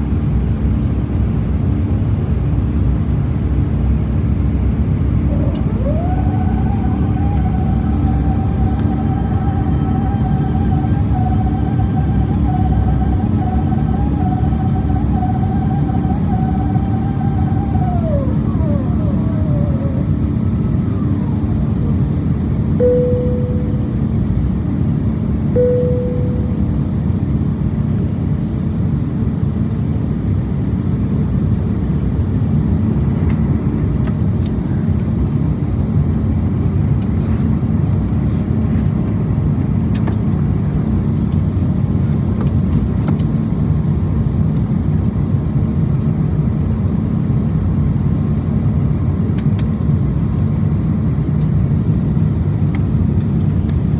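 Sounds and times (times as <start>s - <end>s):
aircraft cabin engine rumble: 0.0s - 53.9s
chime tones: 22.8s - 24.1s, 25.6s - 26.8s.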